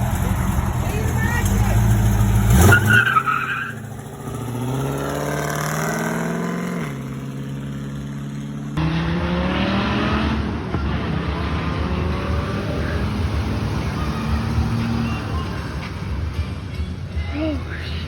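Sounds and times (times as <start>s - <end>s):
tire squeal: 0.0s - 6.2s, 12.3s - 16.1s
car engine accelerating: 0.0s - 18.0s.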